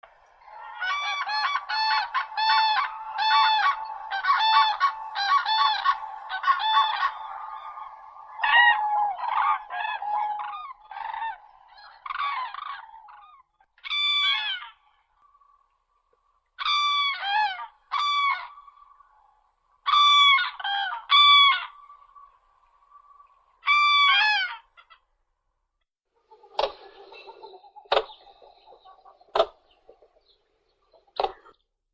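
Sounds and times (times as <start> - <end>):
crane trumpeting calls: 0.3 - 13.0.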